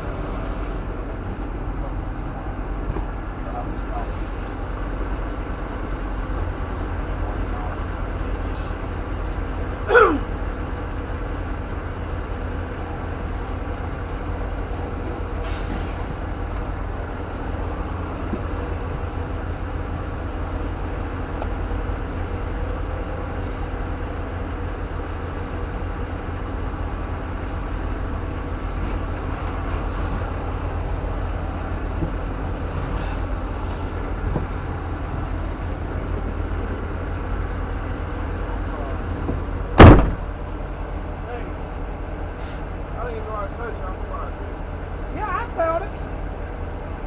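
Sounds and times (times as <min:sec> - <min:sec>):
vehicle engine idling: 0:00.0 - 0:47.0
short loud falling sound: 0:39.8 - 0:40.3.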